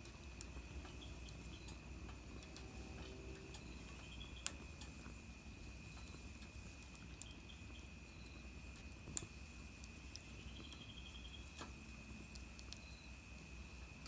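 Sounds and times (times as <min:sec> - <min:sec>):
fire pops: 0:00.0 - 0:10.8, 0:11.4 - 0:14.0
wood fire crackling: 0:00.0 - 0:14.0
rapid chirping trill: 0:10.2 - 0:11.6.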